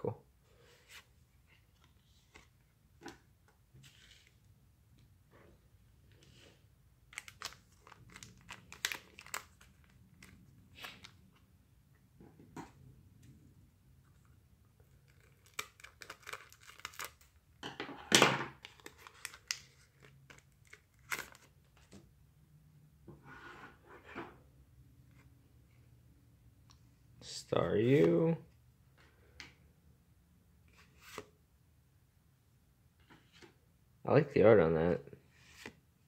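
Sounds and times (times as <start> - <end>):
foil wrapper crinkling and tearing: 7.2 - 10.0, 15.1 - 17.3.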